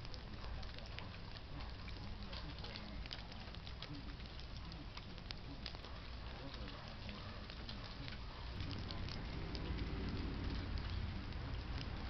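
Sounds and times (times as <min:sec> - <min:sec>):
rain drops pattering: 0:00.0 - 0:12.0
rain hiss: 0:00.0 - 0:12.0
low rumble: 0:08.5 - 0:12.0.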